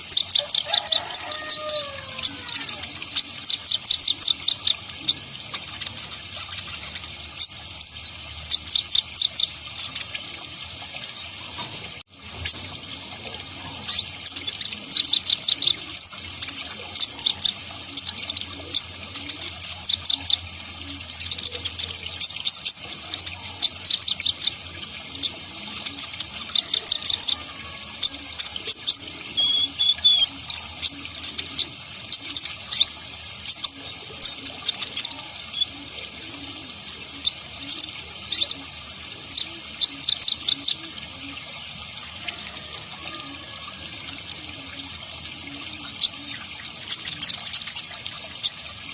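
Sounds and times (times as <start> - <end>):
sunbird chirping and trilling: 0.0 - 10.2, 25.2 - 38.6.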